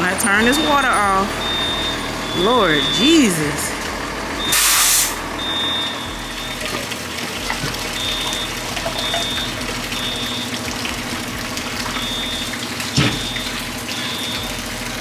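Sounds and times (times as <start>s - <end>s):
water rushing from sprinkler: 0.0s - 15.0s
short electronic beeps: 0.4s - 3.5s, 4.4s - 6.7s.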